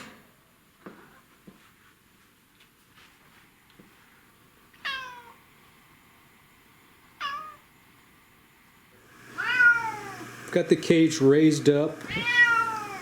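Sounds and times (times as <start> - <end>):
cat meowing: 4.8 - 5.4, 7.2 - 7.6, 9.4 - 10.3, 12.1 - 13.0.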